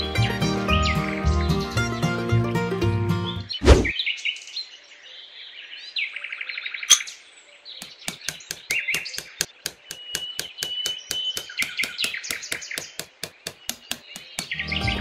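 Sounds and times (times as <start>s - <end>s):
birds chirping: 0.0s - 2.4s, 3.2s - 15.0s
hammer tapping rods into sand: 7.8s - 14.7s.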